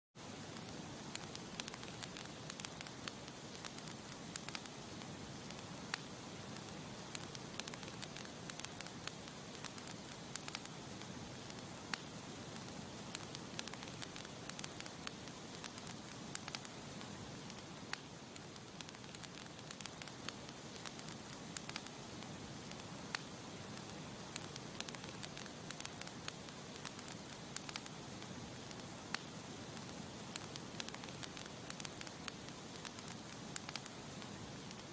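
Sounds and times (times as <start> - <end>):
flames hissing: 0.2 - 34.9.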